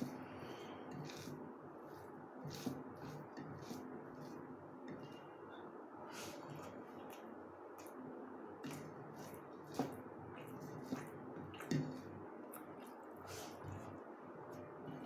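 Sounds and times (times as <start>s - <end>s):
wet chewing: 6.1s - 15.0s.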